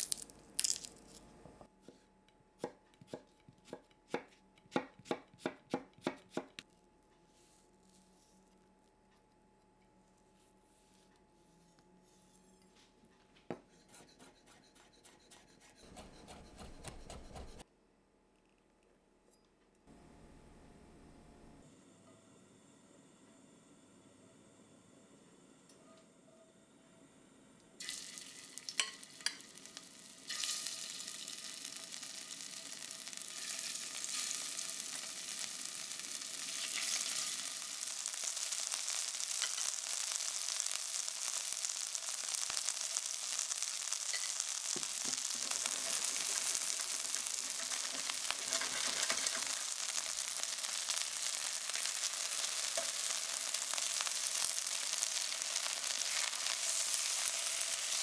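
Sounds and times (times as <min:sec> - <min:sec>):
chicken sizzling in oil: 0:27.8 - 0:58.0
tongs clicking against pan: 0:28.7 - 0:29.5.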